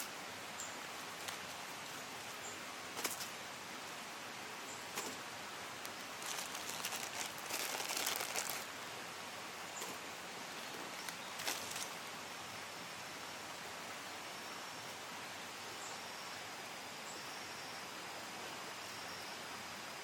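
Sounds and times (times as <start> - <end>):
stream rushing: 0.0 - 14.0
dense crackling: 6.1 - 8.6.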